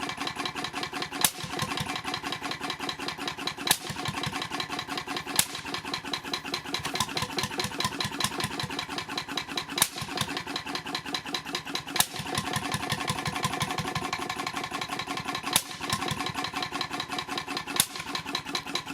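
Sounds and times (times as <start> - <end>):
engine running with ticking beat: 0.0 - 18.9
sharp crack: 5.4 - 5.8, 15.6 - 16.1.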